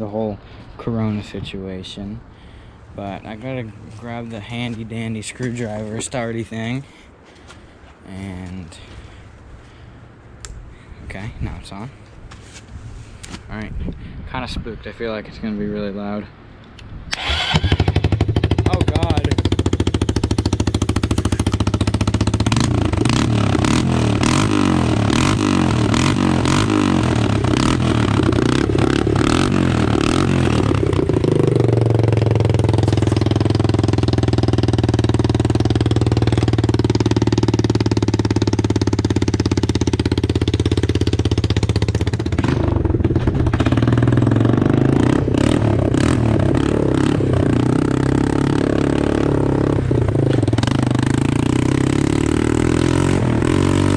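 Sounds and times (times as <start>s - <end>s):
exhaust pops: 17.1s - 47.0s, 49.1s - 51.8s
loud atv engine revving: 17.1s - 53.9s.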